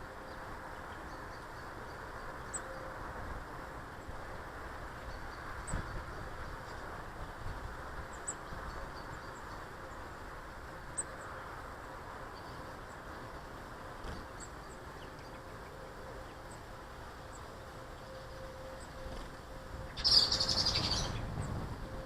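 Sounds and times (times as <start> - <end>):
faint steady hum: 0.0 - 22.0
small birds chirping: 12.3 - 21.5.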